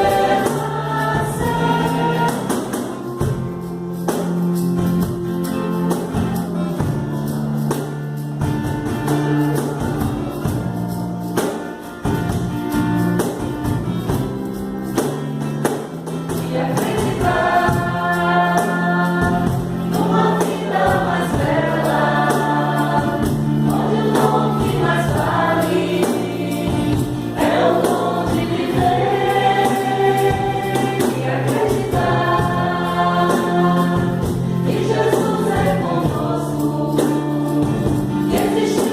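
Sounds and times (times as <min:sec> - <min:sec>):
voices singing together: 0:00.0 - 0:04.3, 0:16.1 - 0:38.9
live band instrumental: 0:00.0 - 0:38.9
tambourine: 0:00.0 - 0:38.9.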